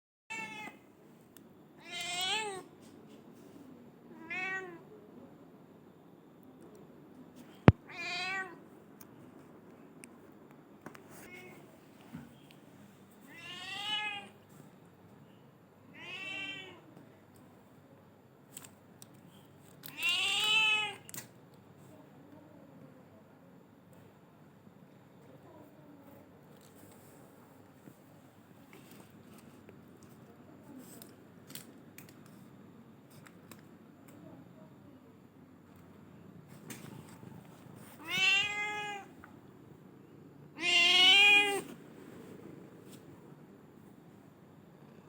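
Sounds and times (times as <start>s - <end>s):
cat meowing: 0.3s - 0.8s, 1.8s - 2.6s, 7.9s - 8.6s, 13.3s - 14.3s, 16.0s - 16.8s, 19.9s - 21.1s, 38.0s - 39.1s, 40.6s - 41.7s.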